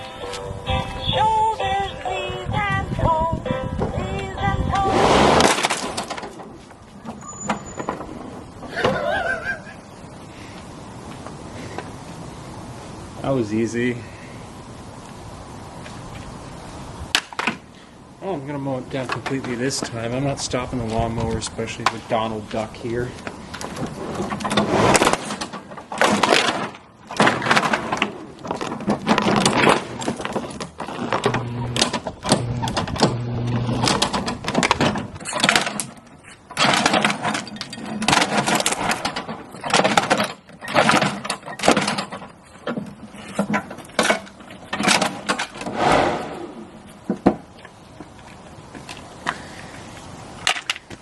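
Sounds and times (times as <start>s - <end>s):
blade crunching plastic: 5.3s - 6.5s, 23.6s - 42.2s
lawnmower engine hum: 30.2s - 35.2s.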